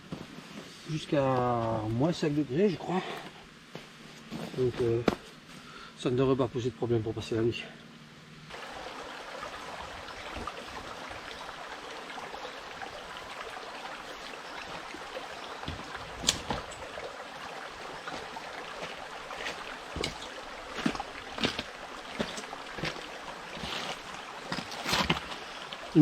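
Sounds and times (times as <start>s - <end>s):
forest stream running: 0.0s - 26.0s.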